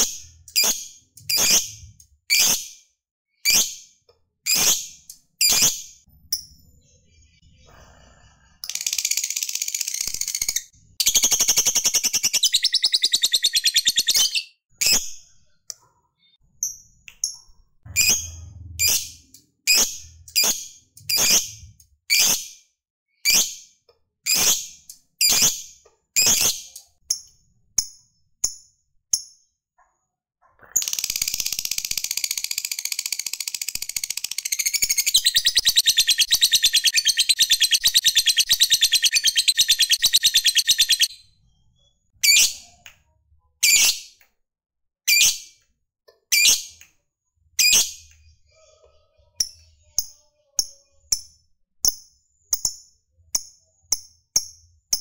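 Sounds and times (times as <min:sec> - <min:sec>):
lovebird rapid chattering trill: 0:08.7 - 0:14.4, 0:30.8 - 0:41.1
lovebird sharp high chirps: 0:08.7 - 0:15.2, 0:30.8 - 0:41.2.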